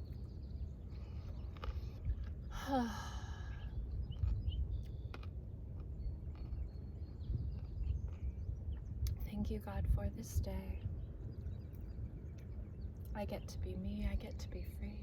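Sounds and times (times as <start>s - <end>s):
woman sighing: 2.5s - 3.6s.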